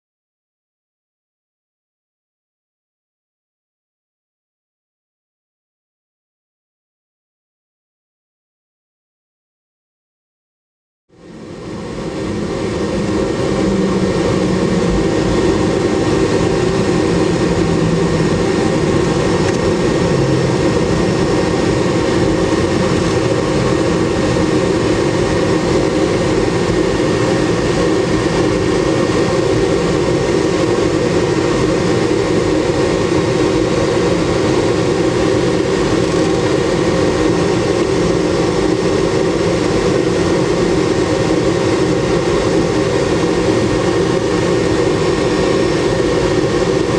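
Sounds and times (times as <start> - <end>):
jet engines droning in cabin: 11.1 - 46.9.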